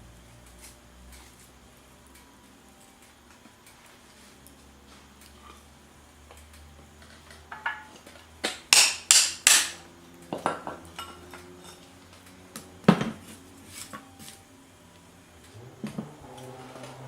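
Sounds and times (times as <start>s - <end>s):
metal cookware clattering: 7.3s - 8.3s.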